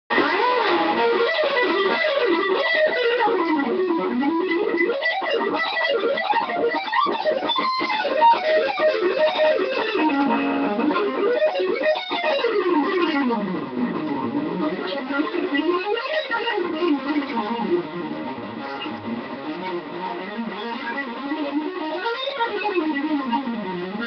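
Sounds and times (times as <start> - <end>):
electric guitar fast lead runs: 0.1 - 24.0.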